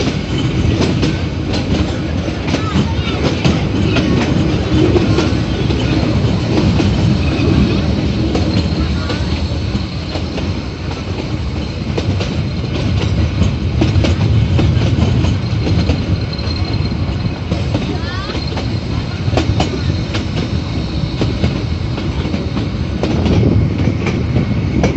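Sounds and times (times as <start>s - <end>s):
train rumbling: 0.0s - 24.9s
wheels clattering over rail joints: 0.0s - 24.9s
high wheel squeal: 5.0s - 10.8s, 15.2s - 21.5s.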